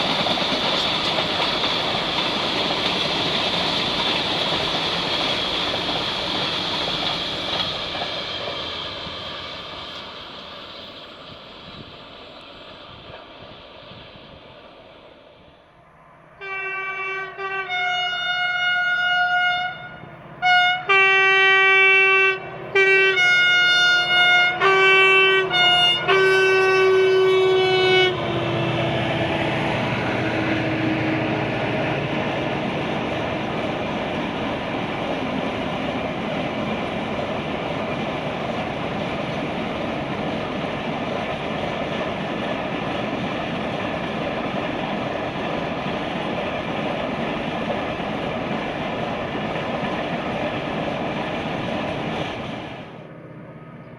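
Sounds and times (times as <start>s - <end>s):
train wheels rumbling on rails: 0.0s - 16.0s, 17.1s - 53.9s
train horn blasts: 16.3s - 32.1s.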